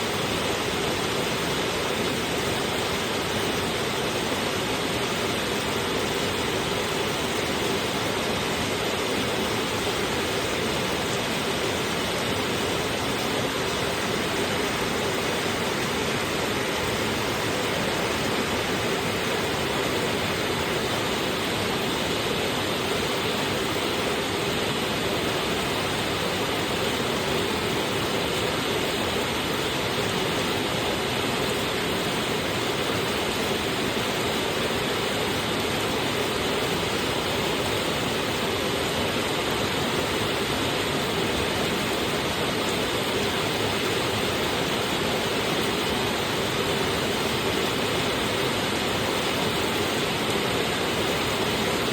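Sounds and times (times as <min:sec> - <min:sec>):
heavy rain pouring: 0:00.0 - 0:51.9.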